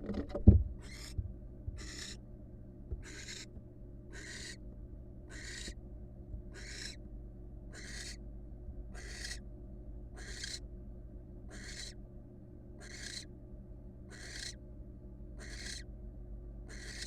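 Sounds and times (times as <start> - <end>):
owl rasping hiss calls: 0.8 - 1.2, 1.8 - 2.2, 3.0 - 3.5, 4.1 - 4.6, 5.3 - 5.8, 6.5 - 7.0, 7.7 - 8.2, 9.0 - 9.4, 10.2 - 10.6, 11.5 - 12.0, 12.8 - 13.3, 14.1 - 14.6, 15.4 - 15.9, 16.7 - 17.0.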